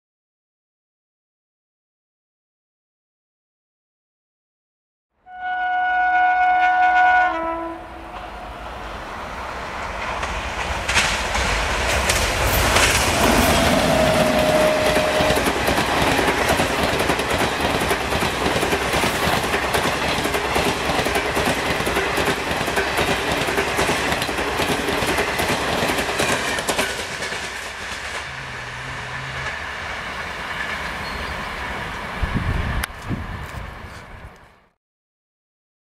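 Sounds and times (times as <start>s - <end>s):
train horn: 5.2s - 8.6s, 13.2s - 15.7s, 28.2s - 29.8s
train passing at speed: 5.9s - 34.7s
wheels clacking over rail joints: 8.1s - 32.1s.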